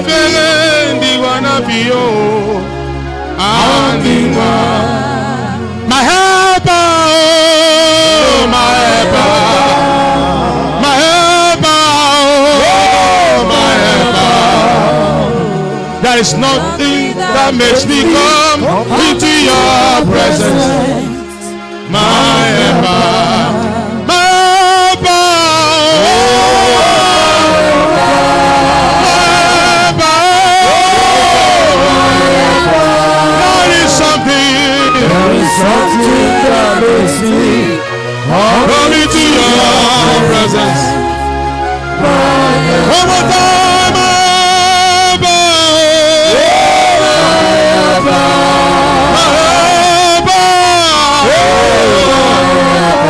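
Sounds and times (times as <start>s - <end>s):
instrumental accompaniment: 0.0s - 53.0s
sustained keyboard chords: 0.0s - 53.0s
voices singing gospel: 0.0s - 53.0s.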